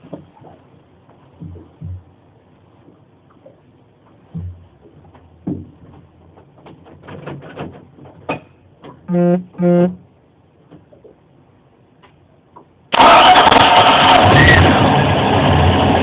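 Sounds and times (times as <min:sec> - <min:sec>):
knocks and clicks: 0:01.4 - 0:02.1
loud buzzer beeps: 0:09.1 - 0:10.0.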